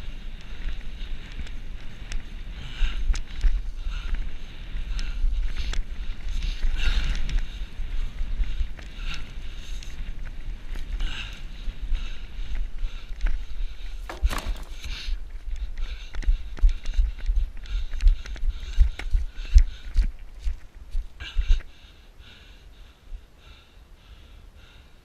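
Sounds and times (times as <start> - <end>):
wind rumbling on microphone: 0.0 - 21.7
bicycle clicks and rattles: 14.0 - 15.1.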